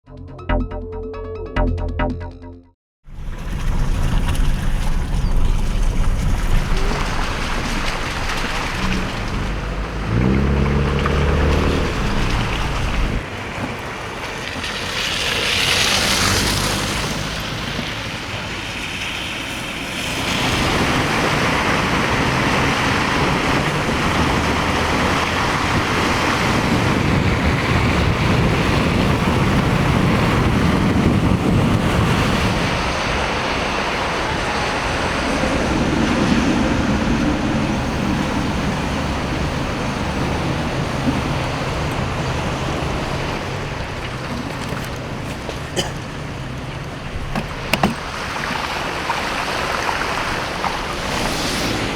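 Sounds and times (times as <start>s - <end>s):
wind on microphone: 3.1s - 13.2s, 20.2s - 44.0s
cars driving on slushy roads: 3.1s - 51.9s
tyres hissing through slush: 5.7s - 27.1s, 35.4s - 51.9s.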